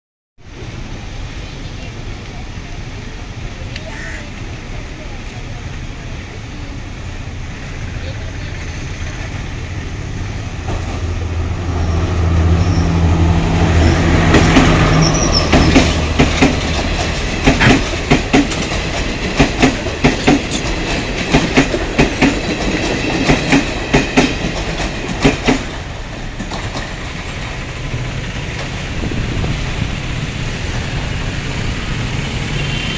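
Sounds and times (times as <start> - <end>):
train engine drone: 0.4 - 32.9
train wheels clacking over rail joints: 13.8 - 29.0.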